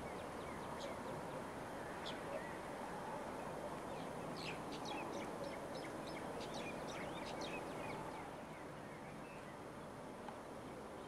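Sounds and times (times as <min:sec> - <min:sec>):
low outdoor background noise: 0:00.0 - 0:11.0
small birds chirping: 0:03.4 - 0:09.9.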